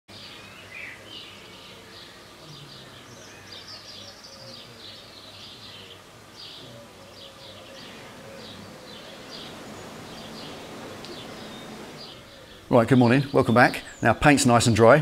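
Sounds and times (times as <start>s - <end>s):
small birds chirping: 0.1s - 15.0s
low steady hum: 6.0s - 13.2s.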